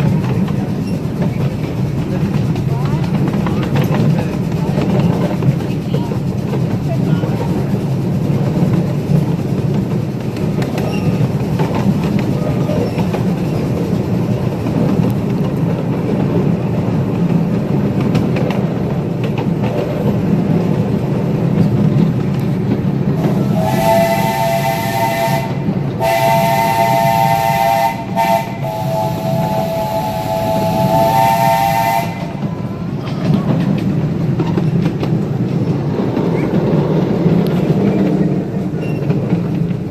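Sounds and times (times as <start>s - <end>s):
steam train rumbling on track: 0.0s - 39.9s
steam locomotive chime whistle: 23.3s - 32.9s.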